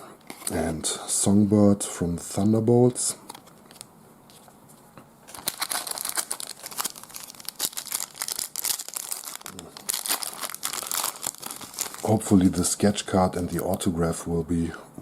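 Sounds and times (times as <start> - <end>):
wrapper crinkling and tearing: 5.3 - 12.7.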